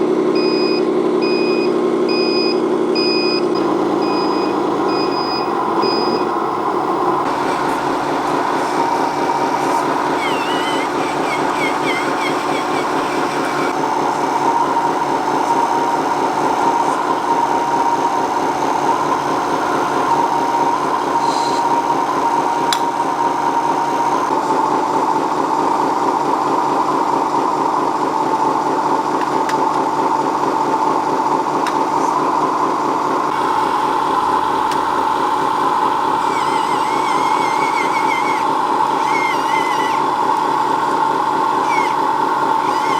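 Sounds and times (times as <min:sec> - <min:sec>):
small electric motor whining: 0:03.4 - 0:24.6, 0:31.7 - 0:42.9.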